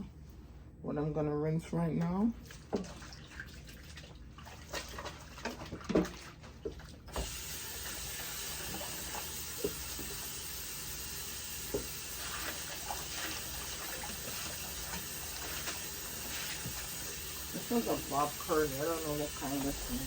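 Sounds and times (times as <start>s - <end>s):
tap water running: 2.0s - 20.0s.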